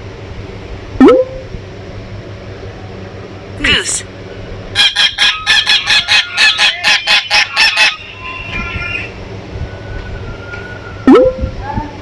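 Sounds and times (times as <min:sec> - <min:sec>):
goose honking: 0:04.8 - 0:09.1.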